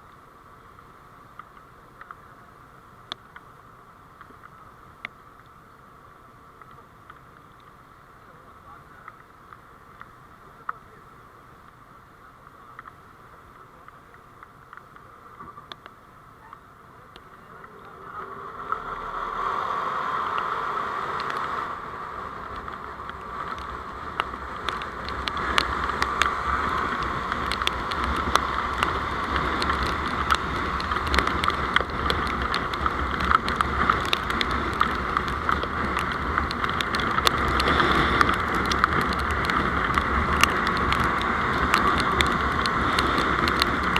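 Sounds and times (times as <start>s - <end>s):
vehicle engine and road noise: 0.0s - 43.9s
sharp ticks: 22.4s - 43.9s.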